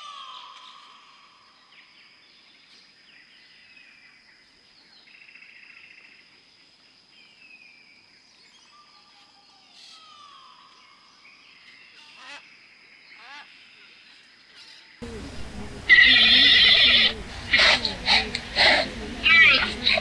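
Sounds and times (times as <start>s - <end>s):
wild bird calls: 15.0s - 20.0s.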